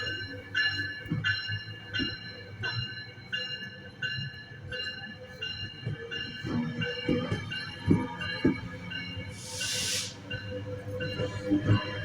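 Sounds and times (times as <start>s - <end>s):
train bell ringing: 0.0s - 12.0s
train rumbling: 0.0s - 12.0s.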